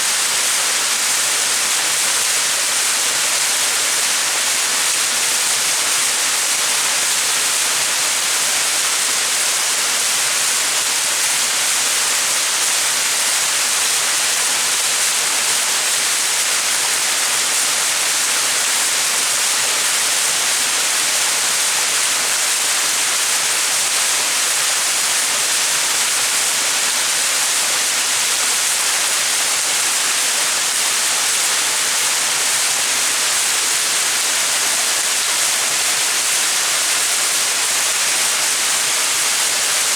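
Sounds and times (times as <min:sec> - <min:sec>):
waterfall splashing: 0:13.9 - 0:39.9.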